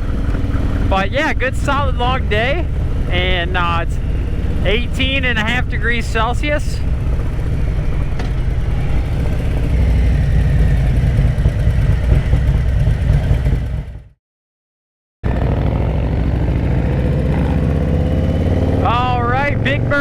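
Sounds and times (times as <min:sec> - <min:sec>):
wind rumble on microphone: 0:00.0 - 0:13.9
motorcycle engine: 0:00.0 - 0:14.2, 0:15.2 - 0:20.0.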